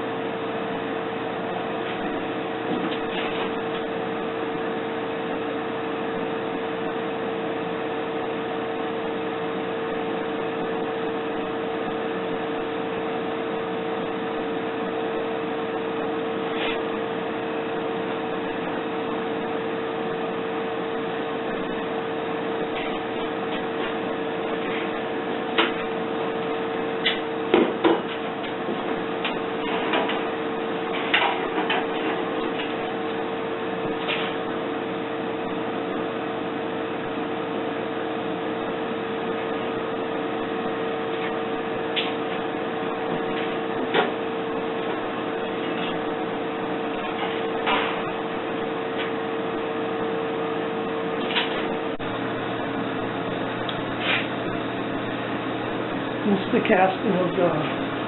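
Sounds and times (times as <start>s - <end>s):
steady mechanical hum: 0.0s - 58.0s.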